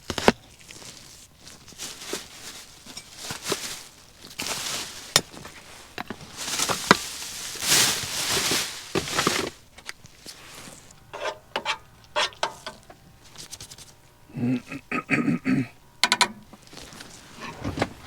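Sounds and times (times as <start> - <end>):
sharp clicks and knocks: 16.0 - 16.5
rubbing and scraping: 16.5 - 18.0.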